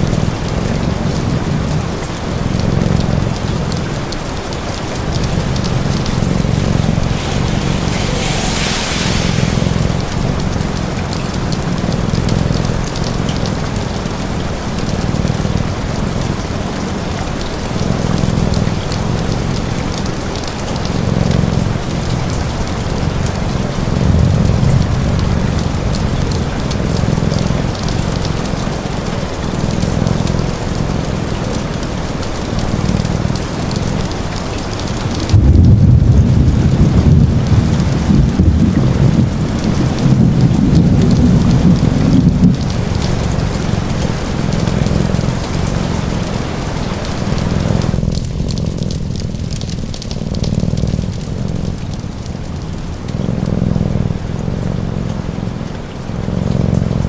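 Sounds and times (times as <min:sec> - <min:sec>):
low rumble: 0:00.0 - 0:16.5, 0:35.2 - 0:55.6
cat purring: 0:00.0 - 0:57.0
steady rain: 0:00.0 - 0:57.0.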